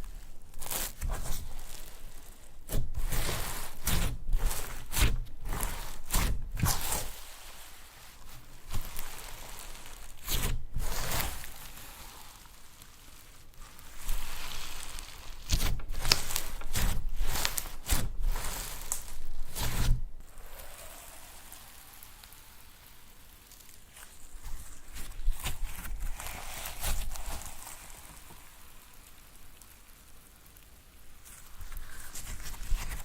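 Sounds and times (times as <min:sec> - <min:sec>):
slime crackling and rustling: 0:00.0 - 0:33.0.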